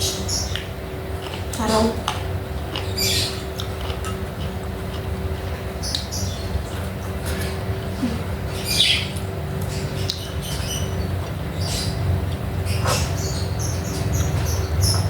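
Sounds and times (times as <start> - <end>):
steady low hum: 0.0 - 15.0
person chewing food: 0.4 - 11.5.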